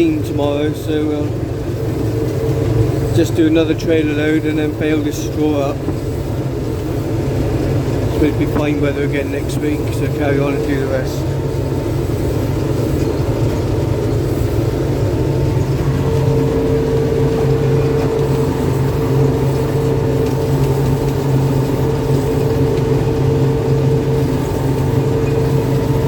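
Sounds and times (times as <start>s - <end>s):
combine harvester engine and threshing: 0.0s - 26.0s.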